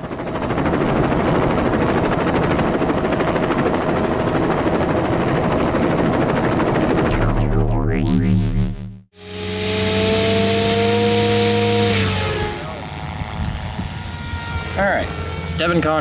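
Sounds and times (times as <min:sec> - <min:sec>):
helicopter rotor blades chopping: 0:00.0 - 0:13.7
high-pitched motor whine: 0:07.0 - 0:16.0.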